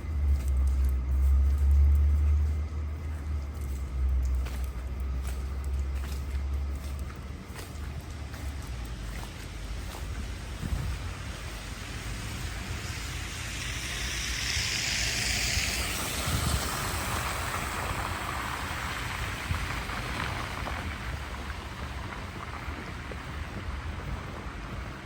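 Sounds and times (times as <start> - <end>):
tyre hiss on wet street: 3.9 - 25.0
wind on microphone: 10.5 - 11.5, 12.2 - 25.0.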